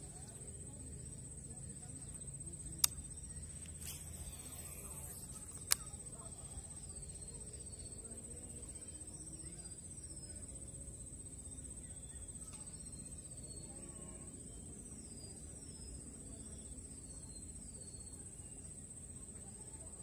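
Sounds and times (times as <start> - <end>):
sharp click: 2.8 - 6.0.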